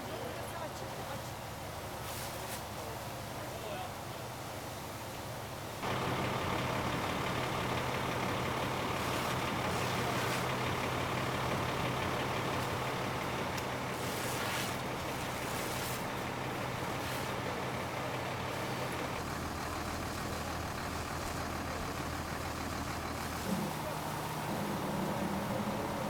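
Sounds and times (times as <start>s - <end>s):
diesel engine running: 5.8s - 26.0s.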